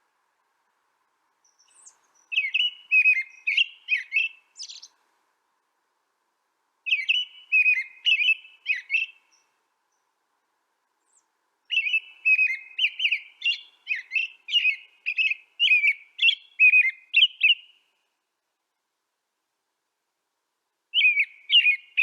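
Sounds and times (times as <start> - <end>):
songbird chirping: 0.0 - 19.0, 20.7 - 22.0.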